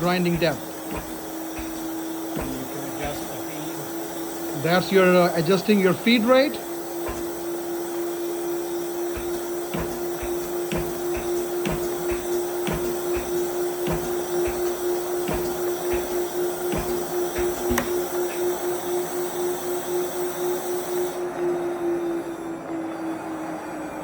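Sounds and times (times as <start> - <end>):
grinder humming: 0.0 - 23.0
irregular clicks and ticks: 9.0 - 18.7.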